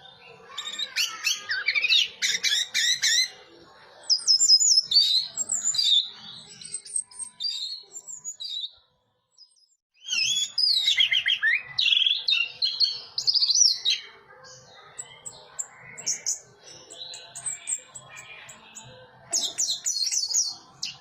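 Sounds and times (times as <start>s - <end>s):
bird singing: 0.0s - 21.0s.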